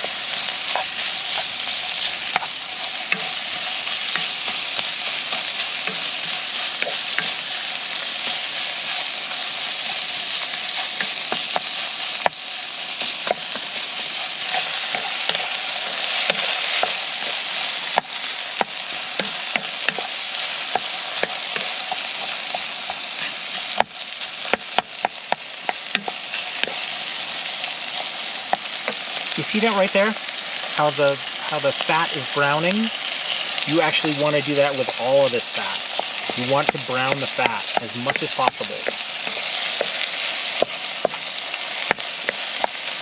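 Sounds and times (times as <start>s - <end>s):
fat sizzling in a pan: 0.0s - 43.0s
utensil scraping a pan: 14.2s - 29.3s.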